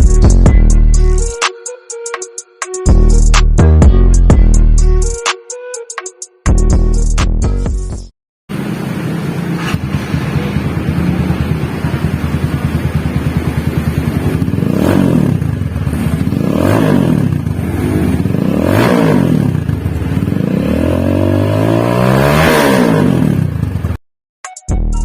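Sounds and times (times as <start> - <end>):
motorcycle engine revving: 8.6 - 24.0.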